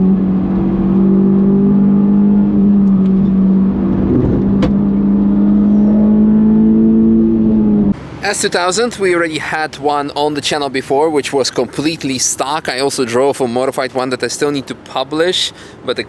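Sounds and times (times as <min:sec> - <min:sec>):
car engine at high revs: 0:00.0 - 0:08.4.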